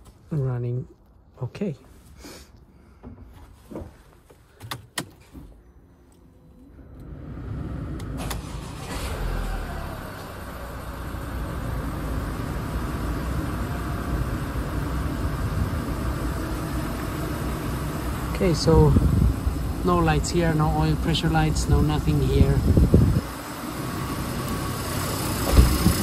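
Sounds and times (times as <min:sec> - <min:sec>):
diesel engine starting and idling: 0:06.6 - 0:26.0.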